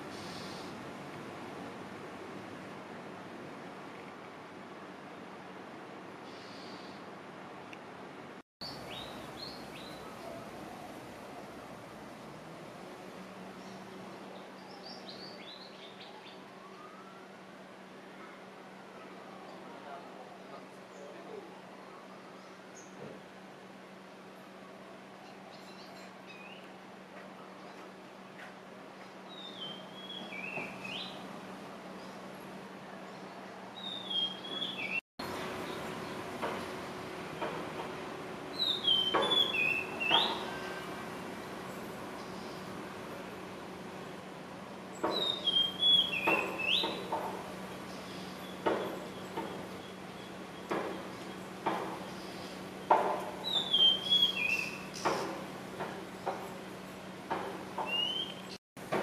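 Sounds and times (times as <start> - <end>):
bird whistled call: 33.8 - 35.0, 38.6 - 40.8, 45.1 - 47.0, 53.4 - 55.0, 57.8 - 58.6
bird calling: 38.5 - 40.9, 45.0 - 52.6, 53.4 - 55.3, 57.8 - 58.6.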